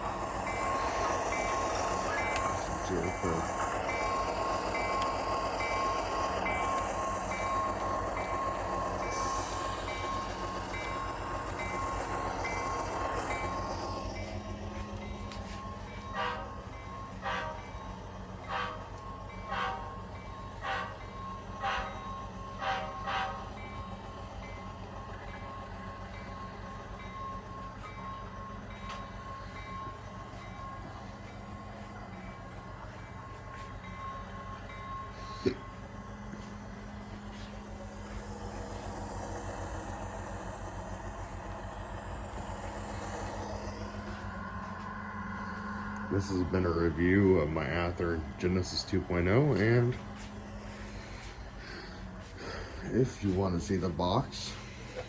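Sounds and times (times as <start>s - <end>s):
diesel engine sound from small speaker: 0.0s - 3.6s, 41.6s - 55.0s.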